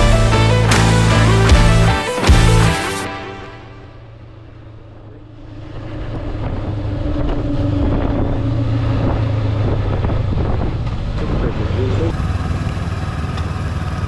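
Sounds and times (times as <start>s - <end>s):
wind noise on microphone: 6.4s - 11.7s
motorbike engine running: 12.0s - 14.0s.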